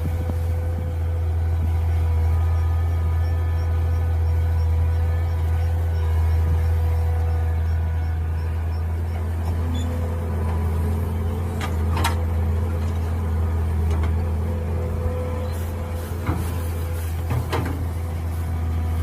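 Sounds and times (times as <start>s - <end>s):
excavator engine running: 0.0s - 19.0s.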